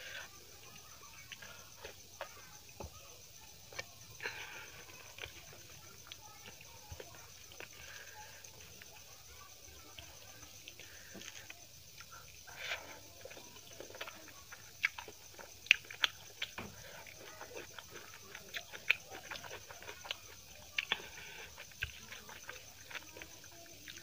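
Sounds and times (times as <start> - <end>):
wet chewing and mouth smacking: 9.8 - 24.0.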